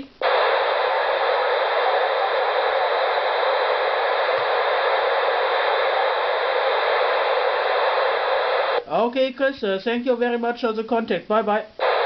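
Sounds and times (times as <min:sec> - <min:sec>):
radio static hiss: 0:00.0 - 0:09.8, 0:11.2 - 0:12.0.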